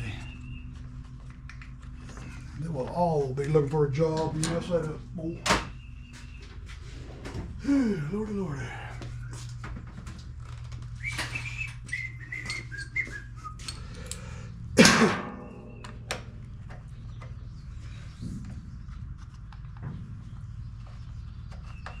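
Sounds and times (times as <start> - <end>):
steady low hum: 0.0 - 22.0
person whistling a tune: 11.0 - 13.8.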